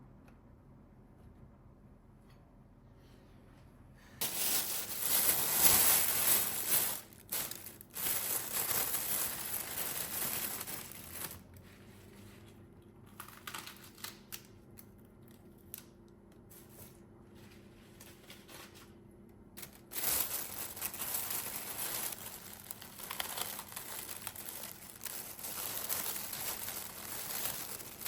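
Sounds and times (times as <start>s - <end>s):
plastic packaging crinkling: 4.2s - 11.4s, 19.6s - 28.0s.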